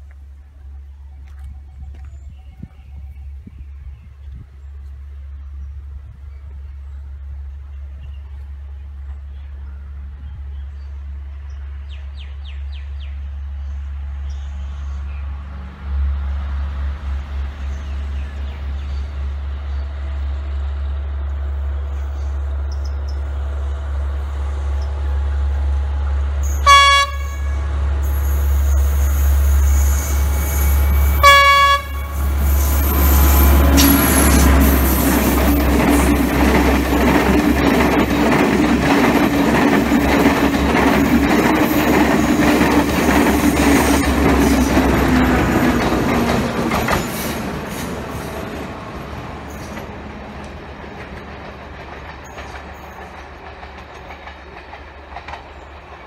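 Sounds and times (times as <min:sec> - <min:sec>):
train horn blasts: 0:26.4 - 0:35.4
wheels clicking over rail joints: 0:33.6 - 0:56.0.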